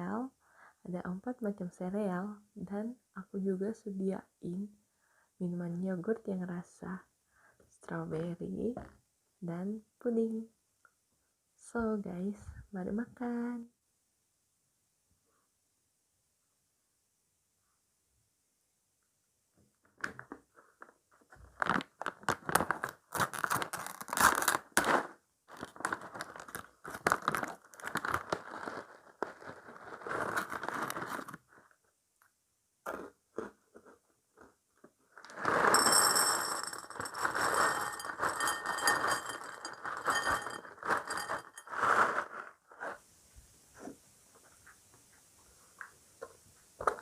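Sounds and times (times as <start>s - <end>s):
crunching cereal: 21.5s - 31.4s, 35.2s - 42.6s.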